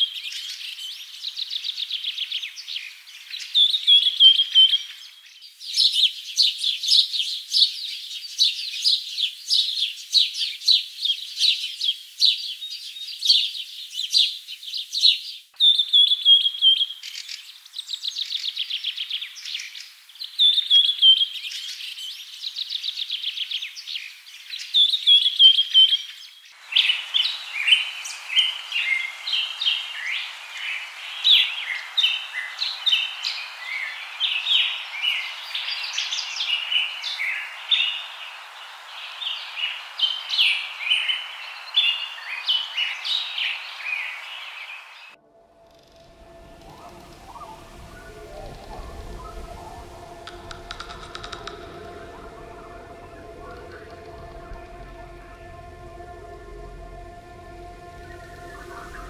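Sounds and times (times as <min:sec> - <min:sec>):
songbirds chirping and trilling: 0:00.0 - 0:59.0
steady background hiss: 0:26.6 - 0:59.0.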